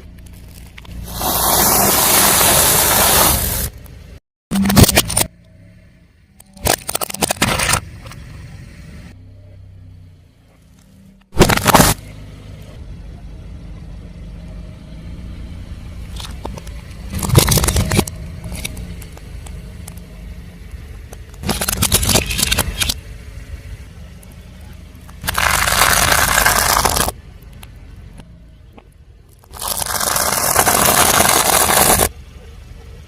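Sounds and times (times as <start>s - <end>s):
car engine hum: 5.0s - 33.0s
tyre crushing brittle objects: 11.4s - 12.0s, 16.2s - 19.2s, 21.3s - 23.0s, 25.0s - 27.2s, 29.4s - 32.1s.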